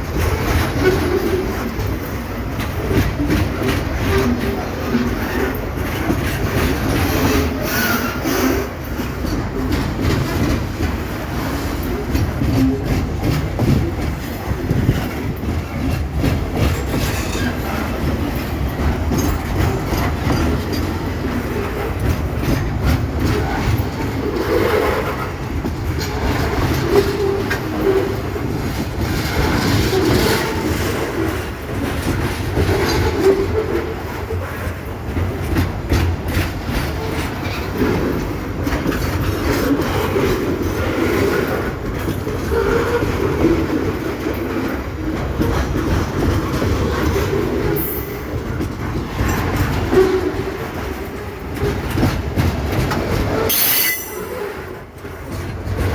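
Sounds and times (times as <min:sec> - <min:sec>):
train wheels clattering: 0:00.0 - 0:55.9
wheel squeal: 0:53.4 - 0:54.6.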